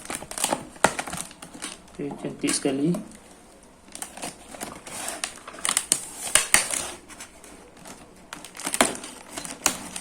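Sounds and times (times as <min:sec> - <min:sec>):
plastic packaging crinkling: 0:00.0 - 0:10.0
bubble wrap snaps: 0:03.9 - 0:06.8.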